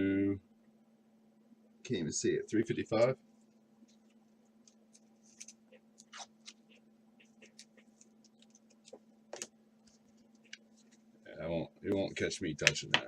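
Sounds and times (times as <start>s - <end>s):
low steady hum: 0.0s - 13.0s
cards flipped by hand: 4.6s - 6.7s.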